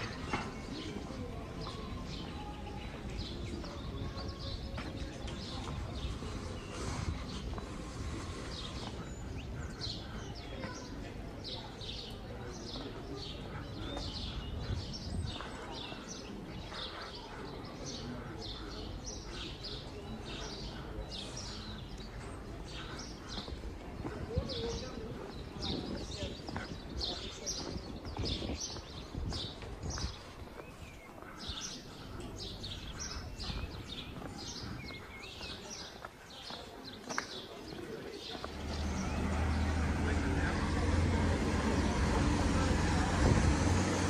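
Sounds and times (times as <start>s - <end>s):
low hum of street ambience: 0.0s - 44.0s
small birds chirping: 0.0s - 44.0s.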